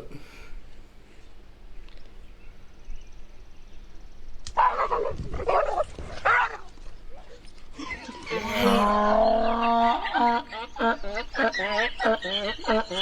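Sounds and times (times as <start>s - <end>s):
dog barking: 4.6s - 6.8s.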